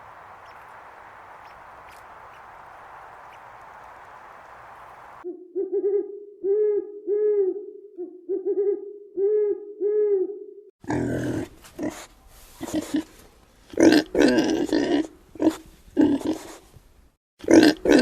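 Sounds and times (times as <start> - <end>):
owl hooting: 0.0 - 5.2
steady hiss: 0.0 - 5.2.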